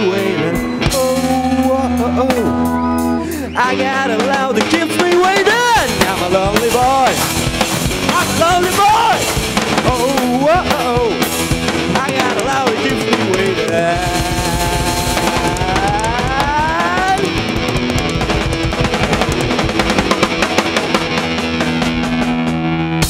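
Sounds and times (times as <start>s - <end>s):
drums: 0.0s - 23.0s
live rock band playing: 0.0s - 23.0s
bending wavering lead notes: 0.2s - 4.2s.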